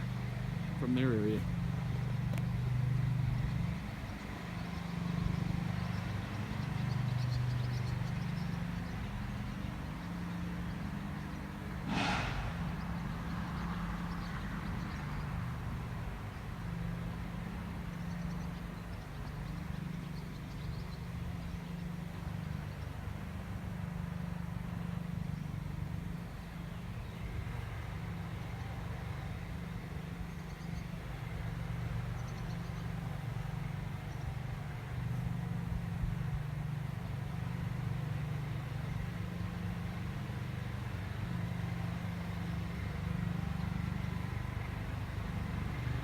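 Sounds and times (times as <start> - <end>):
short sharp noise: 11.8 - 13.8.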